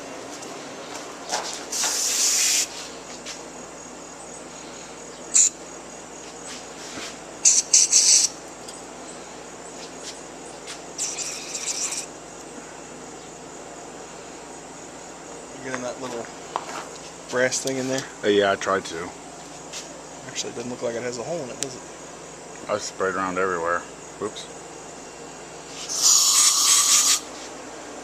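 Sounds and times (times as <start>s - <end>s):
aerosol spray hissing: 1.7s - 3.0s, 25.7s - 27.5s.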